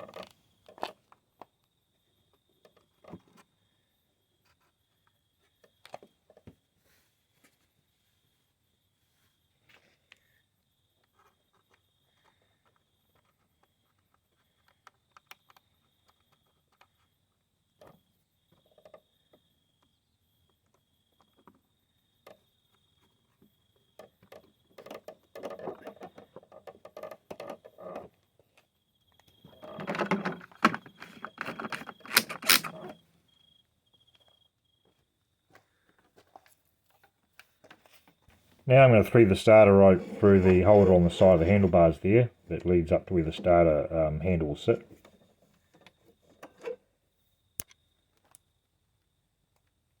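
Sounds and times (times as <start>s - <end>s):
mower parts rattling and clattering: 24.0s - 28.2s, 29.4s - 33.0s
clicks and taps of mower parts: 24.0s - 28.6s, 29.2s - 33.0s.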